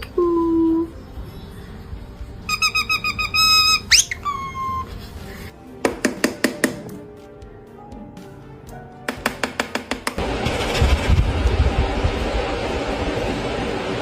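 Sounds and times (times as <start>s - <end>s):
parrot whistling: 2.5s - 4.9s.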